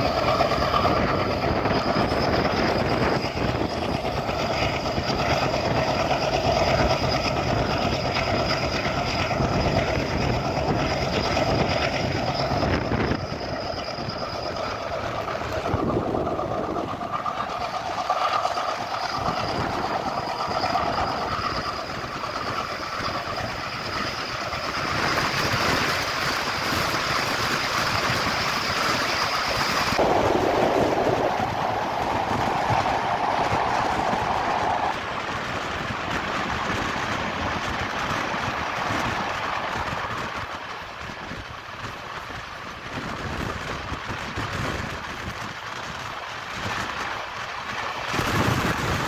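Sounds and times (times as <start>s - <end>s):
ringing tones from running gear: 0.0s - 30.3s
clickety-clack of train wheels: 0.0s - 49.0s
train wheels rumbling on rails: 0.0s - 49.0s.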